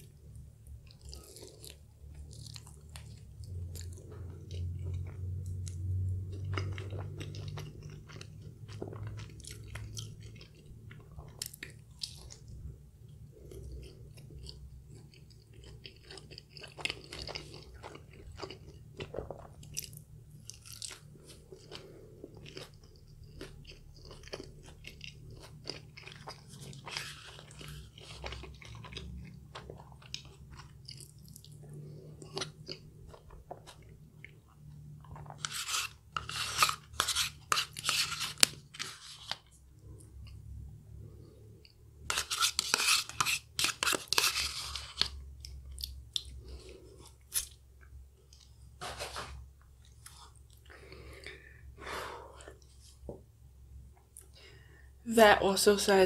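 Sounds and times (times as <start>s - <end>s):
crunchy chewing: 0.7s - 12.5s, 13.4s - 40.4s.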